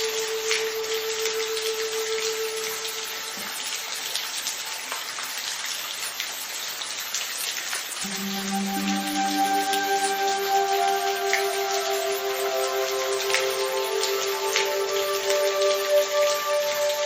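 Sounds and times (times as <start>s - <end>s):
soft background music: 0.0s - 4.4s, 8.0s - 17.0s
rain falling: 0.0s - 17.0s.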